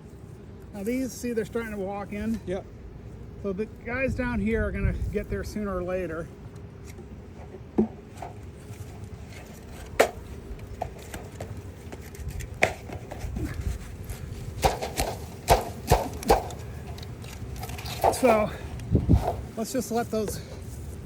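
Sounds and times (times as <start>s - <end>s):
low uneven rumble: 0.0s - 14.6s.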